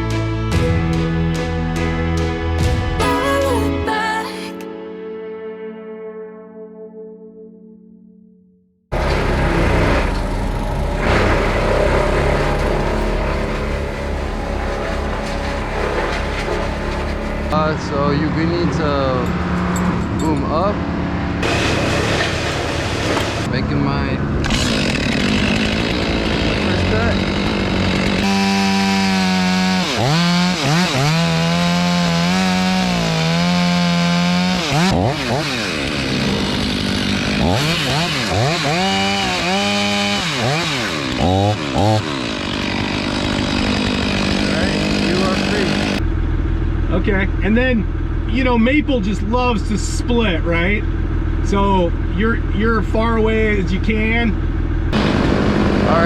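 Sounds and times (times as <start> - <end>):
chainsaw cutting wood: 8.9 - 17.6, 21.4 - 23.5, 24.4 - 46.0
truck engine humming: 8.9 - 17.6, 21.4 - 24.4, 42.6 - 48.3.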